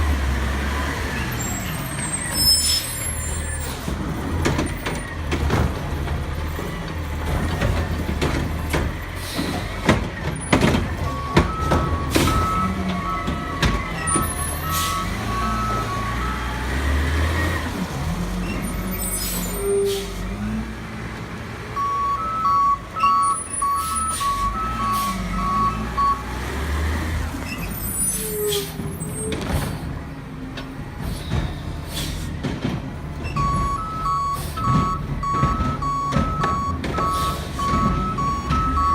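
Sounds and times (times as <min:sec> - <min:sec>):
garbage truck engine rumbling: 0:00.0 - 0:38.9
knocks and clatter: 0:03.8 - 0:14.4, 0:28.8 - 0:34.0, 0:34.6 - 0:38.9
backup beeper: 0:11.0 - 0:16.4, 0:21.8 - 0:26.2, 0:33.3 - 0:38.9.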